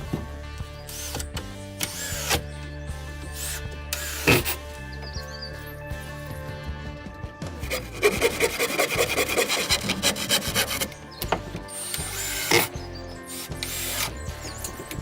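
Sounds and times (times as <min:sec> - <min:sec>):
background music: 0:00.0 - 0:15.0
quick scraping strokes on wood: 0:07.6 - 0:11.0.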